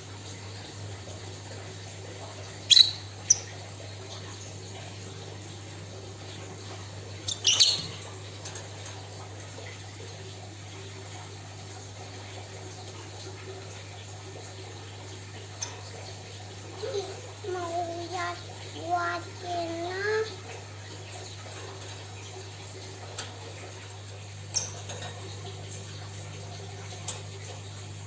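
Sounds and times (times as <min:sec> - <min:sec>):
low background hum: 0:00.0 - 0:28.0
songbird chirping: 0:02.6 - 0:03.6.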